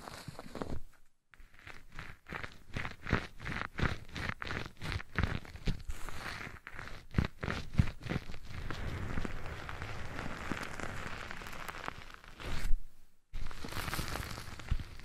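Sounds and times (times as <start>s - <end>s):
crackling and rustling on microphone: 0.0s - 15.0s.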